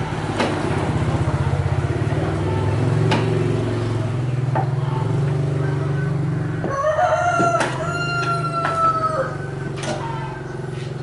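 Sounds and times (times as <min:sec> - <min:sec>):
low mechanical hum: 0:00.0 - 0:11.0
rooster crowing: 0:06.6 - 0:09.6.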